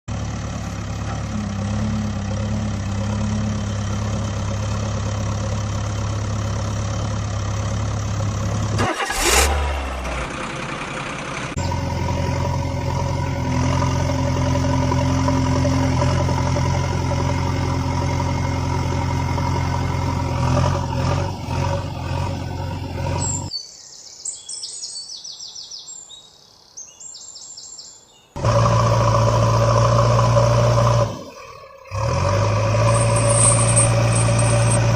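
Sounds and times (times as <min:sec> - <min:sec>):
vehicle engine running: 0:00.1 - 0:23.5, 0:28.4 - 0:34.9.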